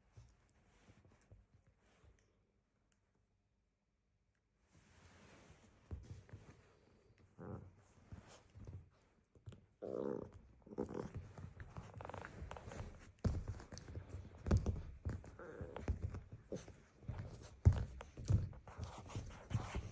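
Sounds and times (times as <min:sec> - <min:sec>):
puppy thumps and scuffles: 0:04.9 - 0:06.8, 0:11.0 - 0:19.9.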